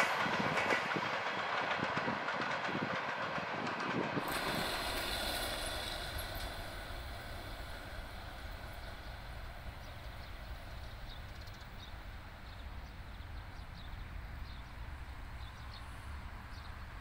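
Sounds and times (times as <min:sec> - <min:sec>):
passenger train rumbling: 0:00.0 - 0:17.0
small birds chirping: 0:07.3 - 0:17.0.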